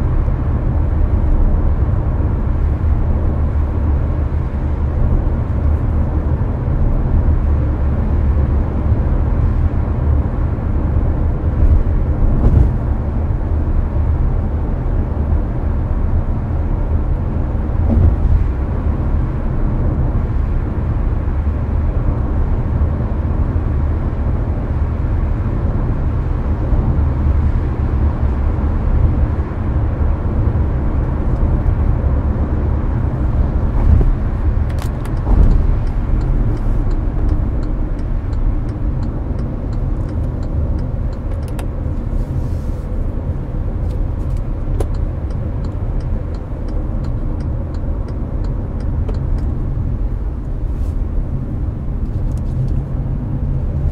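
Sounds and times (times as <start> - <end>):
road and tyre rumble: 0.0 - 53.9.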